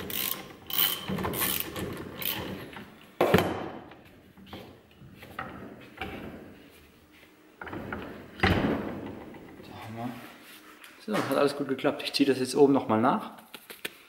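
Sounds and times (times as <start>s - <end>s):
knocks and clunks of tools: 0.8s - 6.4s, 7.6s - 9.6s.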